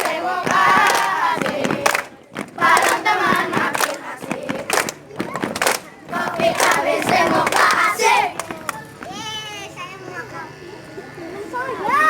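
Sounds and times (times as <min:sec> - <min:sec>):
hand claps: 0:00.0 - 0:08.8
children singing and shouting: 0:00.0 - 0:12.0.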